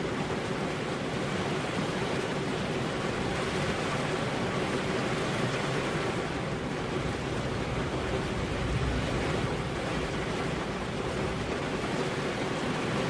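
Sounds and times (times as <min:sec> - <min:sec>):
rain: 0:00.0 - 0:13.0
wind: 0:00.0 - 0:13.0.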